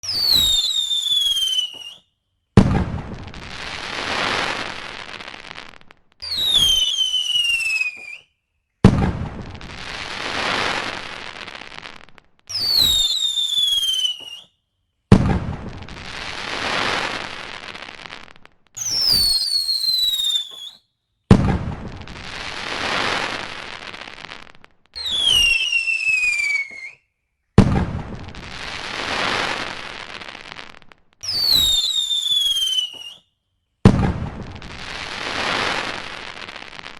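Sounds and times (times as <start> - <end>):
firework whistle falling in pitch: 0.0 - 2.1, 6.2 - 8.4, 12.5 - 14.6, 18.8 - 21.0, 25.0 - 27.1, 31.2 - 33.3
firework bang: 2.6 - 4.8, 8.8 - 11.0, 15.1 - 17.3, 18.8 - 19.5, 21.3 - 23.5, 27.6 - 29.8, 33.8 - 36.9.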